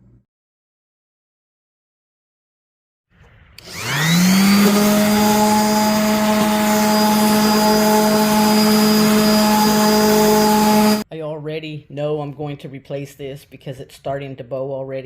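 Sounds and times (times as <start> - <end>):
power tool motor spinning: 3.6 - 11.0.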